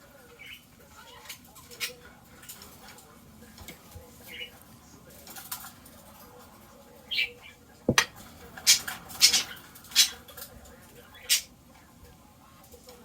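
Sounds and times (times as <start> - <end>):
knock in kitchen: 7.9 - 8.1.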